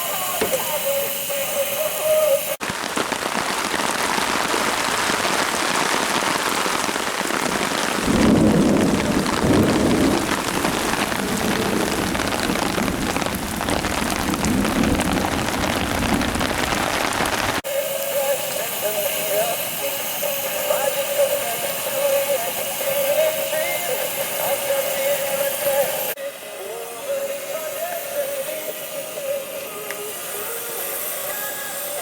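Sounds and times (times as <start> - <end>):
heavy rain falling: 0.0 - 26.2
deep rumble: 8.1 - 17.6.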